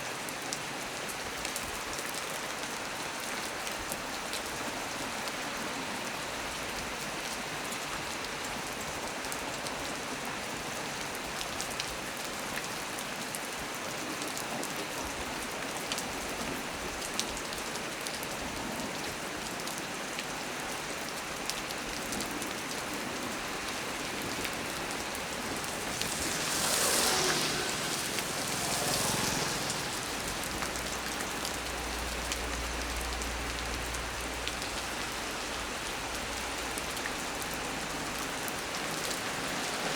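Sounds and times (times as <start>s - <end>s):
heavy rain on a tree: 0.0s - 39.9s.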